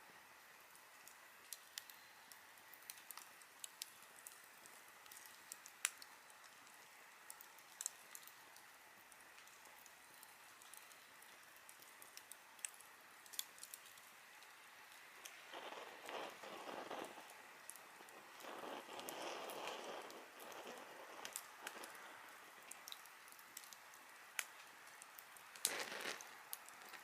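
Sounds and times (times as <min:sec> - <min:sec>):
campfire hiss: 0:00.0 - 0:27.0
campfire pops and snaps: 0:00.7 - 0:27.0.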